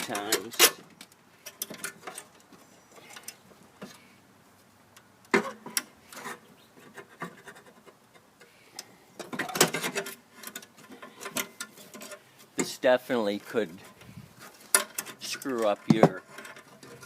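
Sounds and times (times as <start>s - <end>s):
scraping on mower axle: 5.3s - 17.0s.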